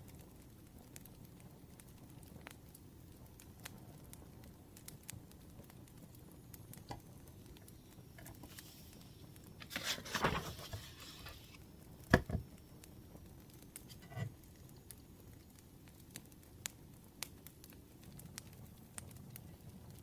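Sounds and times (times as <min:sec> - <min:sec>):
wood fire crackling softly: 0:00.0 - 0:20.0
rustle: 0:08.2 - 0:11.6.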